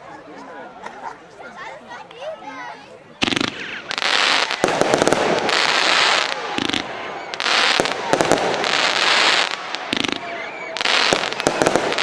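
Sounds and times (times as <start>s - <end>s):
firework launch shots: 3.2s - 12.0s
firework rushes of noise: 3.2s - 12.0s.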